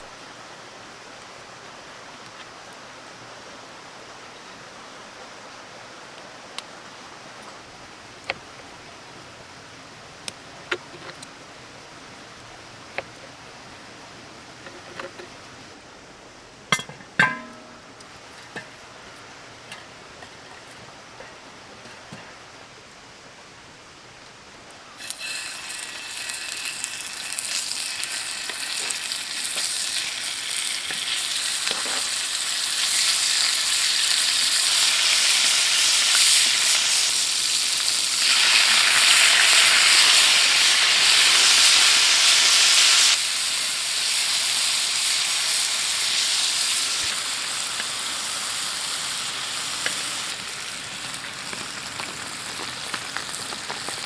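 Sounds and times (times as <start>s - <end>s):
food sizzling in a pan: 25.0s - 54.0s.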